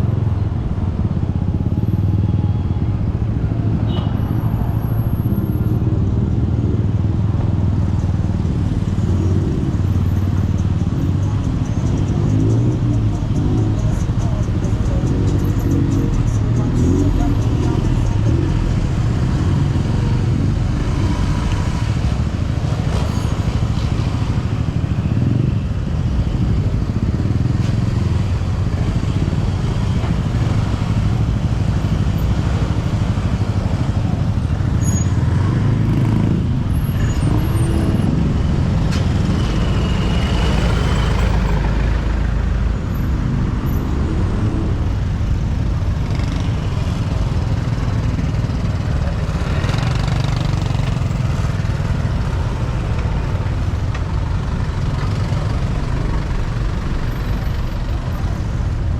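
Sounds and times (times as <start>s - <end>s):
motorcycles and cars passing: 0.0s - 58.9s
steady low rumble: 52.4s - 58.9s.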